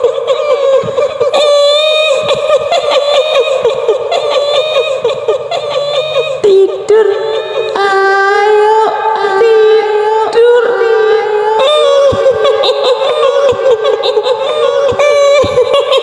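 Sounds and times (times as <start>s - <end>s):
high-pitched female voice wailing: 0.0s - 16.0s.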